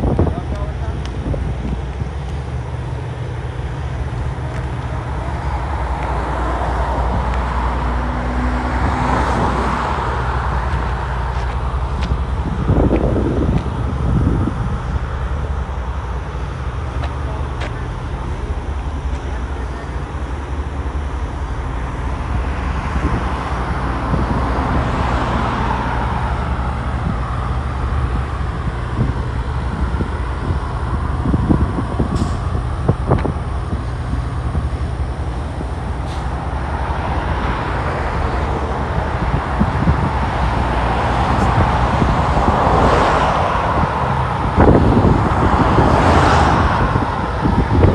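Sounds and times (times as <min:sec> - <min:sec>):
road traffic: 0:00.0 - 0:47.9
wind rumble on microphone: 0:00.0 - 0:47.9
vehicle passing: 0:01.9 - 0:32.7, 0:35.1 - 0:47.9.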